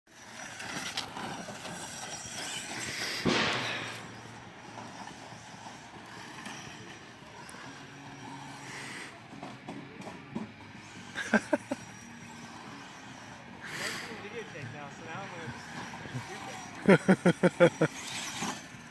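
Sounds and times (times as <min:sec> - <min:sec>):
radio-controlled cars whirring: 0:00.1 - 0:18.9
loud rushing burst: 0:03.1 - 0:04.8.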